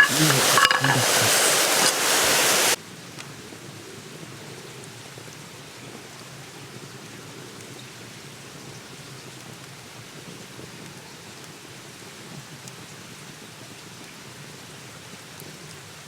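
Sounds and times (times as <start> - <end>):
faint steady hiss: 0.0 - 2.8
loud steady hiss: 0.0 - 2.8.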